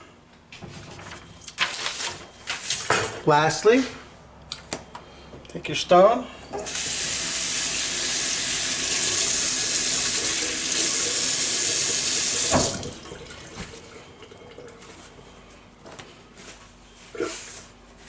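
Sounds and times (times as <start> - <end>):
tap water running into sink: 6.7 - 14.7.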